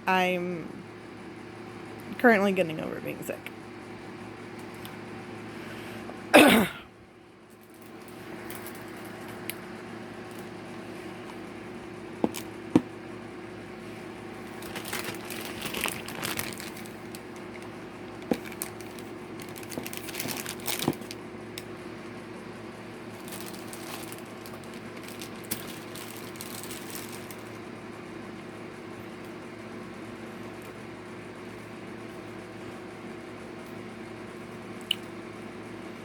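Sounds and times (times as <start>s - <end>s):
steady low hum: 0.0s - 36.0s
plastic packaging crinkling: 14.4s - 21.7s, 23.0s - 27.6s.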